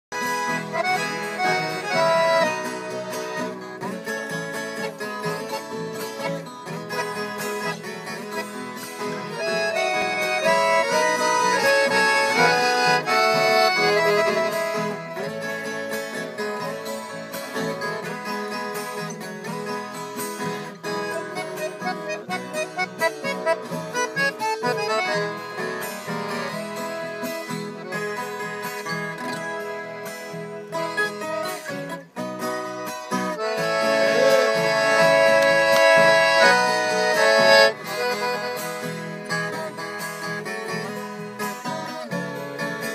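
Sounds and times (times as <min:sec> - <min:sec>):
accordion playing melody: 0:00.1 - 0:42.9
plucked guitar: 0:00.1 - 0:42.9.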